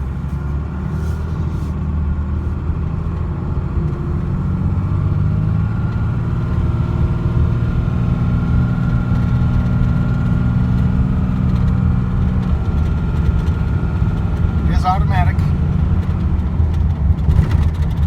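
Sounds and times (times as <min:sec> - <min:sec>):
pickup truck engine idling: 0:12.0 - 0:17.3.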